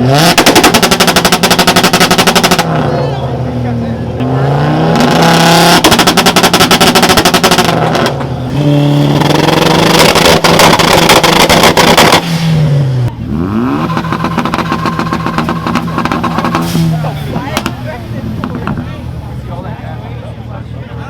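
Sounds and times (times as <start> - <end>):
car engine revving: 0.0 - 19.9
exhaust crackling and banging: 4.9 - 19.2.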